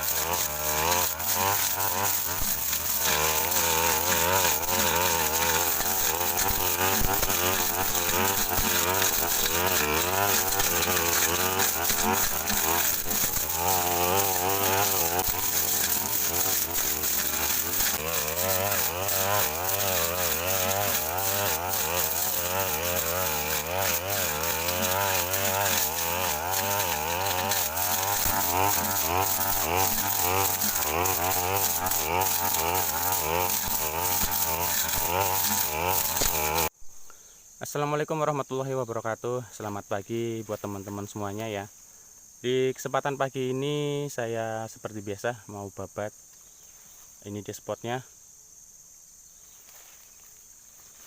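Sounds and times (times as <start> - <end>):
brush cutter engine: 0.0 - 36.8.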